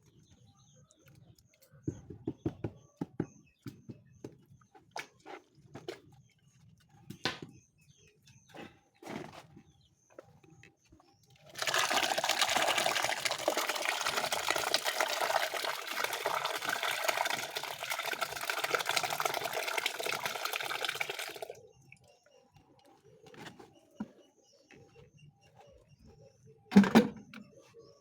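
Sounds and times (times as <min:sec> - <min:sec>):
water pouring: 0:11.5 - 0:21.6.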